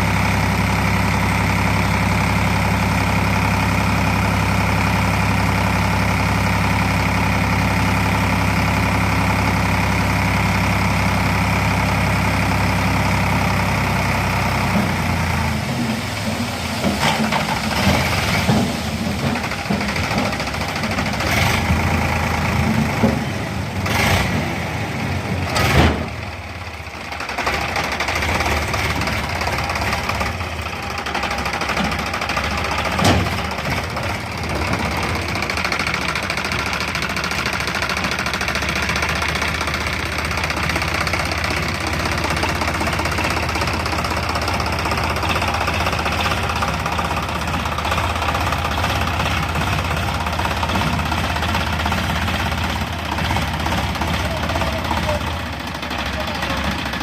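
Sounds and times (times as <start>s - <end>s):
tractor engine running: 0.0s - 57.0s
knocks and clunks: 32.7s - 35.1s.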